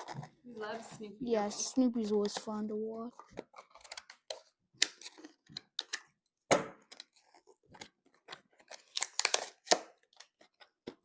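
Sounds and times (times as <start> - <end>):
plastic packaging crinkling and clicking: 3.2 - 6.2, 6.8 - 11.0.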